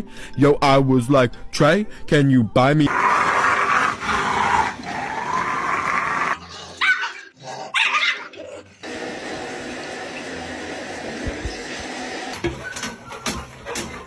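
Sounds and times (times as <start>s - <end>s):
dog high-pitched barks: 6.8s - 8.3s.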